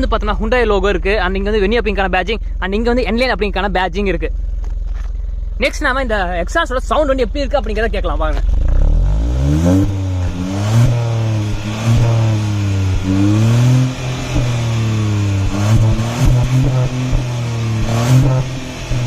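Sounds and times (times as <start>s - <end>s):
car engine revving: 8.2s - 19.0s.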